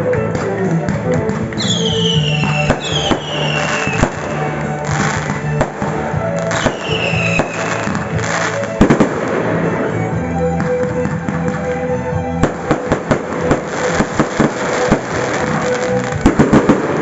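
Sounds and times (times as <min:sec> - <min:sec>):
music: 0:00.0 - 0:17.0
fireworks bangs: 0:01.3 - 0:11.8, 0:12.4 - 0:17.0
firework whistles falling in pitch: 0:01.6 - 0:05.7, 0:06.4 - 0:08.7.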